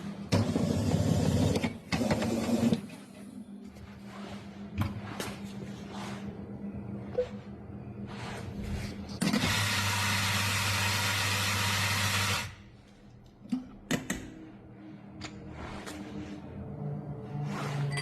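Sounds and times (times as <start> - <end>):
low hum: 2.9 - 9.2, 12.6 - 18.0
kitchen appliance motor running: 9.2 - 12.6.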